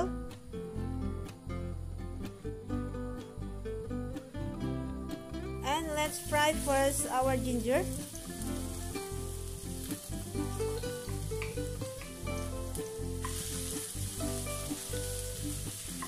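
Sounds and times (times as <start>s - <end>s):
soft background music: 0.0s - 16.0s
ginger sizzling in hot oil: 5.8s - 16.0s.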